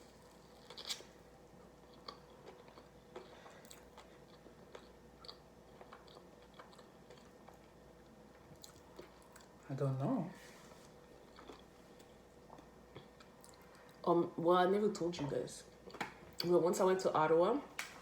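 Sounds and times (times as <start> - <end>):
quiet chewing: 0.4 - 9.6, 10.7 - 14.0.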